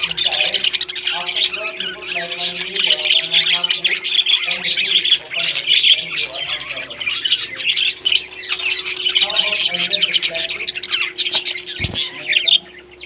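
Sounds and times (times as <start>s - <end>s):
parrots squawking: 0.0s - 13.0s.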